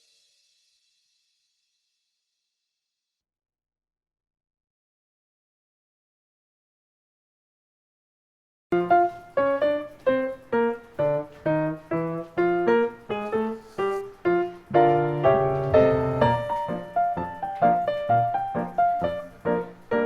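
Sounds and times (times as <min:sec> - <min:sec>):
piano chords: 0:08.7 - 0:20.0.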